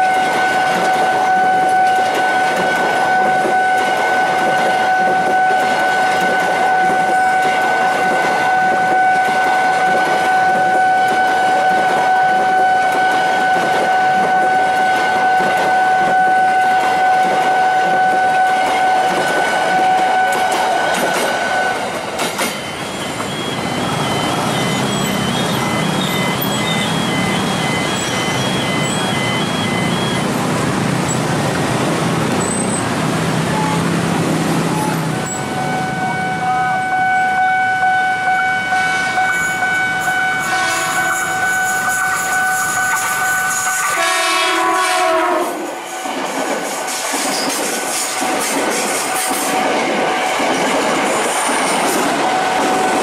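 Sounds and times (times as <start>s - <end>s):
train horn: 0.0s - 21.9s, 33.5s - 34.0s, 34.6s - 46.1s
train coaches rolling past: 0.0s - 53.0s
crossing alarm two-note tone: 22.5s - 30.5s, 34.7s - 45.4s.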